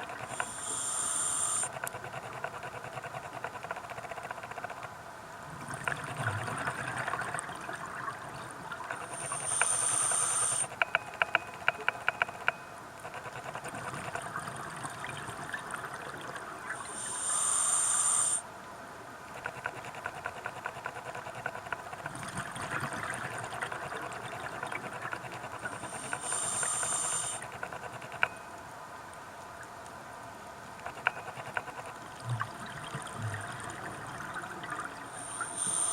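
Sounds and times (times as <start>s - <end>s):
regulator hissing inhalations: 0.3s - 1.7s, 9.0s - 10.7s, 16.8s - 18.4s, 25.7s - 27.5s, 35.1s - 35.9s
exhaled air bubbling: 32.2s - 35.9s.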